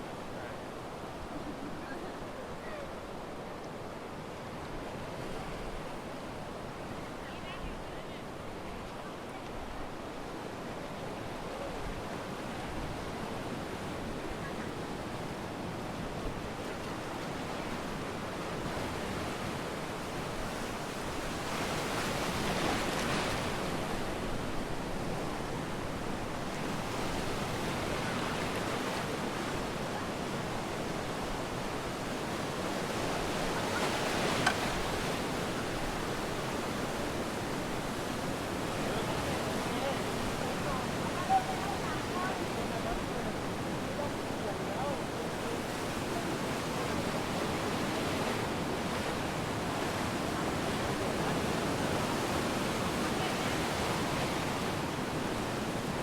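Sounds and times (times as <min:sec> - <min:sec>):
surf washing up a beach: 0:00.0 - 0:56.0.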